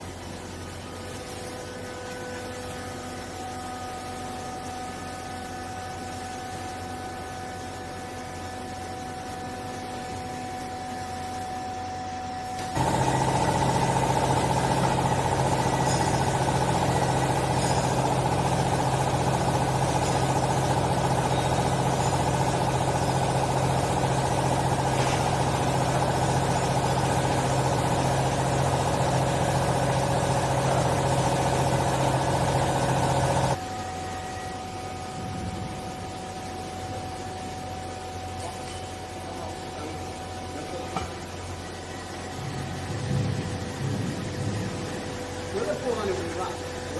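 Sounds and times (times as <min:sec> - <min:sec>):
hydraulic pump droning: 0:12.6 - 0:33.6.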